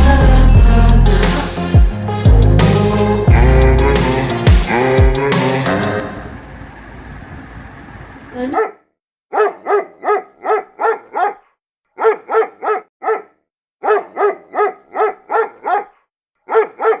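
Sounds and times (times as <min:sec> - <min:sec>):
dog barking: 0:08.4 - 0:17.0.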